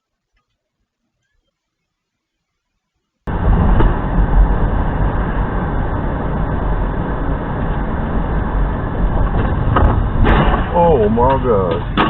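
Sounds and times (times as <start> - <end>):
car road and engine noise: 3.3 - 12.0.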